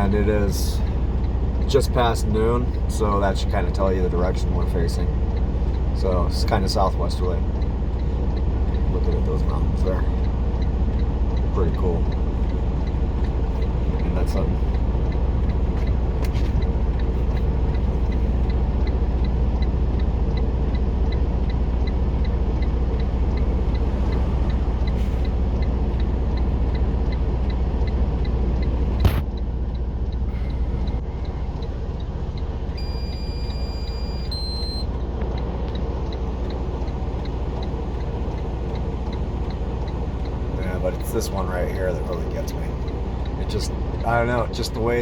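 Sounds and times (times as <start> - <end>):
truck engine idling: 0.0 - 45.0
faint regular ticking: 0.1 - 45.0
sharp click: 29.0 - 29.4
two-note electronic beep: 32.7 - 35.0.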